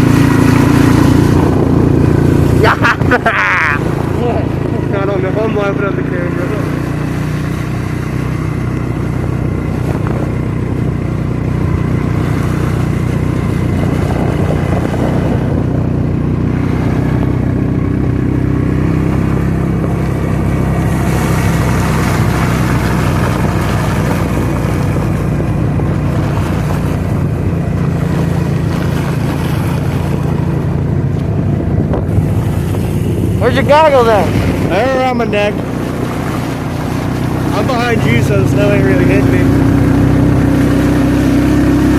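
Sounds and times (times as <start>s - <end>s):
wind noise rushing: 0.0s - 5.0s, 12.6s - 17.8s, 28.2s - 41.9s
atv engine running: 0.0s - 41.9s.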